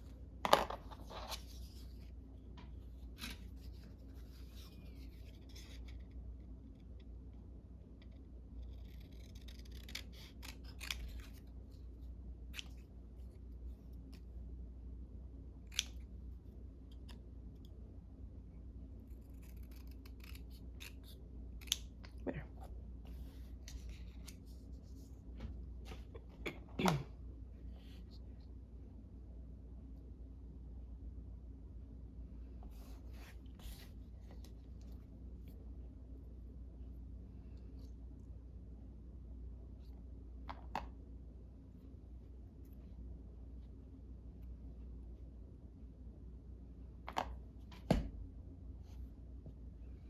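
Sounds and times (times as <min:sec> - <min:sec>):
scissors cutting paper: 0:08.6 - 0:11.5, 0:19.1 - 0:21.9.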